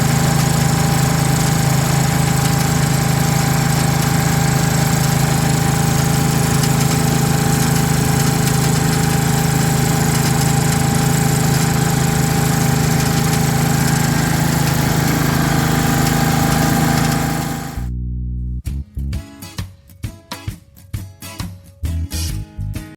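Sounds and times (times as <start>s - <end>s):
small engine running steadily: 0.0s - 17.9s.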